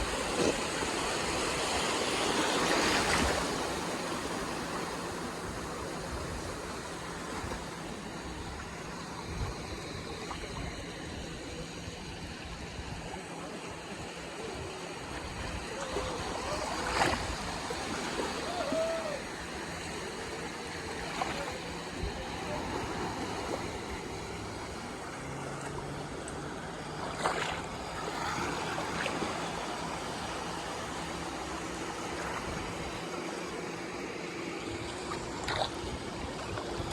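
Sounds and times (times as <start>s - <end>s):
sea waves washing onto shore: 0.0s - 36.9s
sharp splash-like clicks: 25.5s - 29.4s, 34.8s - 36.9s.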